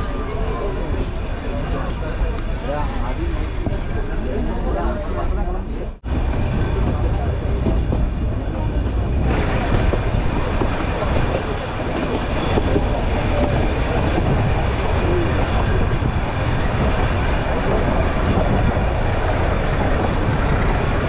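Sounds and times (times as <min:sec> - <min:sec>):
train running noise: 0:00.0 - 0:21.0
wind buffeting microphone: 0:06.0 - 0:21.0.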